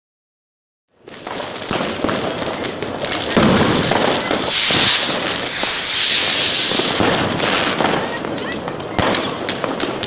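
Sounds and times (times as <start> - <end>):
firecrackers crackling and popping: 0.9 - 10.0
loud fireworks hiss: 1.1 - 10.0.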